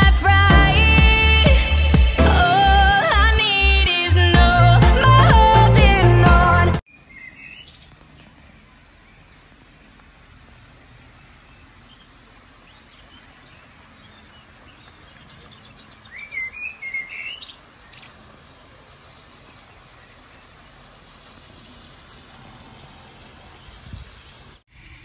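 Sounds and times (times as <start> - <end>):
small songbirds chirping: 6.9 - 25.0.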